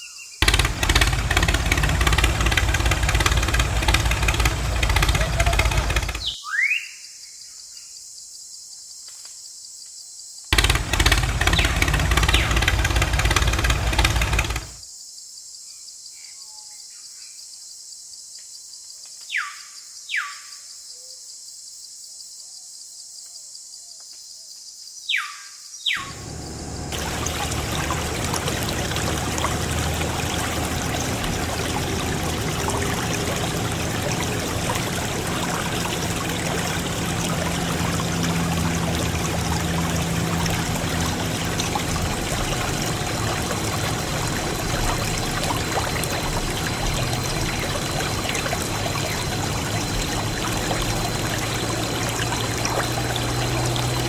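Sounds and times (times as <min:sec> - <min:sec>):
low hum: 0:00.4 - 0:06.3, 0:10.6 - 0:14.8, 0:26.0 - 0:54.0
water pouring heavily: 0:00.4 - 0:06.4, 0:10.6 - 0:14.8, 0:26.0 - 0:54.0.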